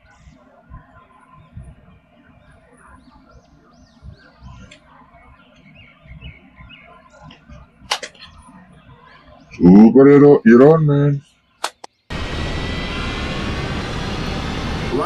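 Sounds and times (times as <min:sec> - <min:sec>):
small birds chirping: 0:00.0 - 0:10.5.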